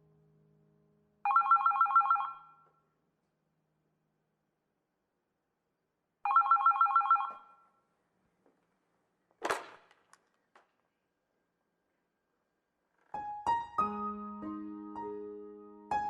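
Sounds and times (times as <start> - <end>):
telephone ringing: 1.3 - 2.6, 6.3 - 7.6.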